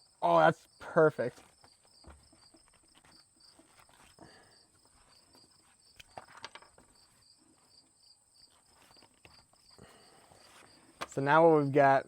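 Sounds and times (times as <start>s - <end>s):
insects chirping: 0.0s - 11.8s
small clicks and knocks: 5.9s - 7.0s.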